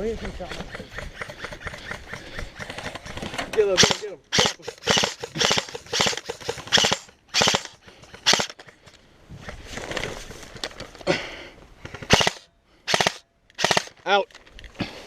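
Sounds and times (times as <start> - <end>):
airsoft rifle firing bursts: 0.7 - 8.7, 11.9 - 14.0.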